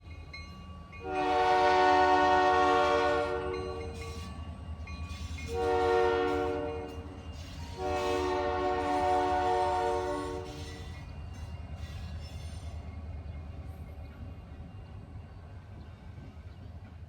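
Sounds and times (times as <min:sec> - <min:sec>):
locomotive horn blasts: 0:01.0 - 0:04.0, 0:05.5 - 0:07.1, 0:07.8 - 0:10.7.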